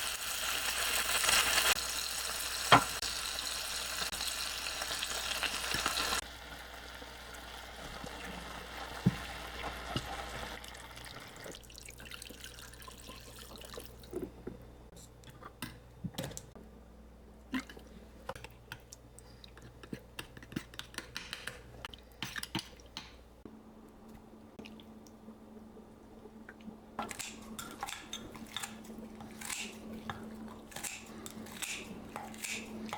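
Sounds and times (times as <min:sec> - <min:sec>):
food sizzling in a pan: 0:00.0 - 0:10.6
kitchen clicks and taps: 0:19.6 - 0:23.2.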